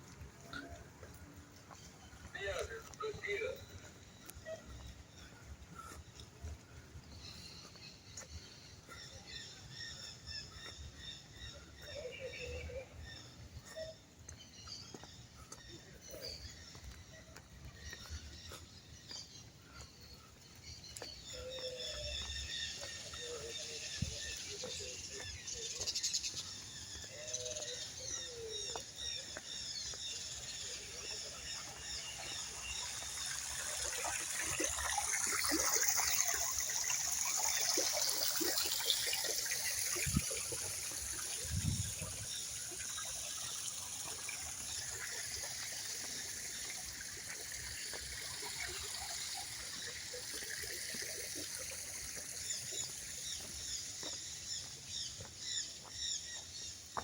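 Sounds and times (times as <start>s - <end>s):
small birds chirping: 0.4s - 57.0s
water trickling: 19.0s - 57.0s.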